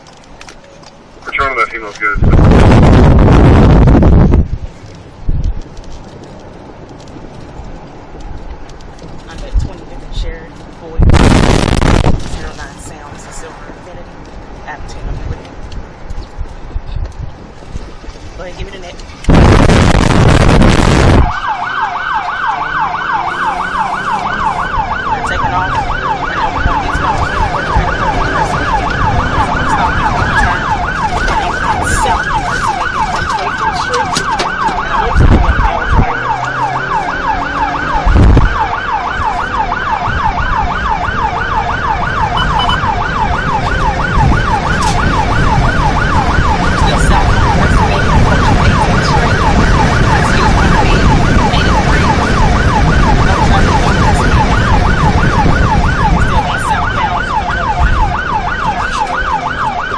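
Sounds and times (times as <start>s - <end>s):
car engine and road noise: 0.0s - 59.9s
police siren yelping: 11.0s - 13.6s, 19.3s - 59.9s
loud low rumbling surges: 19.3s - 21.3s.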